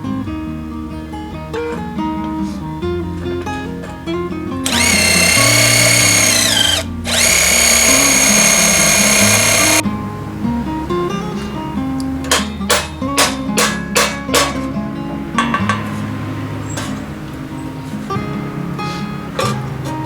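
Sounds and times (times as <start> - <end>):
acoustic guitar music: 0.0 - 4.7, 6.8 - 7.1, 9.8 - 20.0
electric power tool whining: 4.6 - 9.8.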